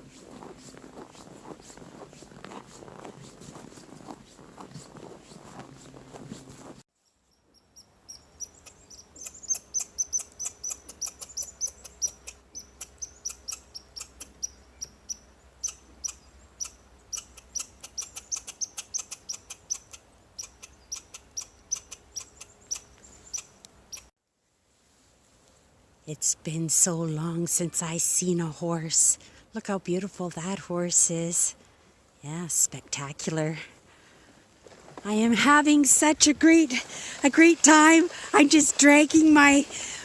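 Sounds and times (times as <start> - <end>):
small songbirds chirping: 7.0 - 24.1.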